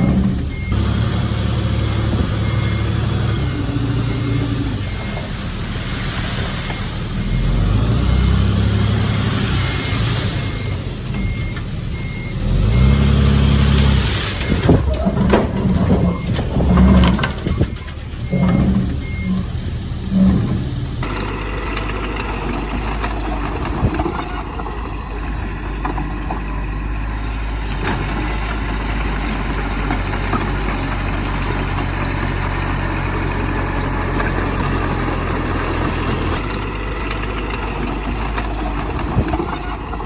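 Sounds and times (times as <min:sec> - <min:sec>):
reversing alarm beeping: 0:00.0 - 0:29.2
diesel machinery revving: 0:00.0 - 0:40.0.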